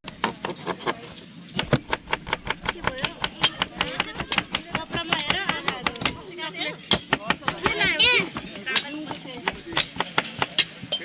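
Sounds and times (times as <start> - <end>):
faint voices talking: 2.2 - 11.0.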